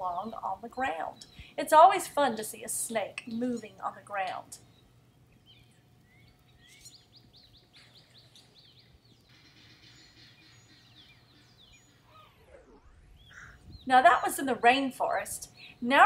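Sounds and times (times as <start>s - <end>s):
faint birdsong: 0.0s - 16.0s
bird chirping: 4.6s - 16.0s.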